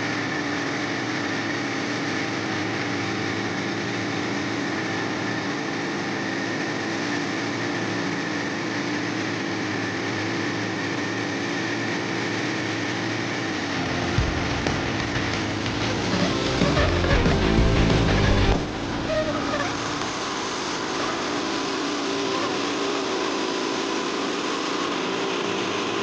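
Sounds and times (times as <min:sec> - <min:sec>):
engine humming steadily: 0:00.0 - 0:26.0.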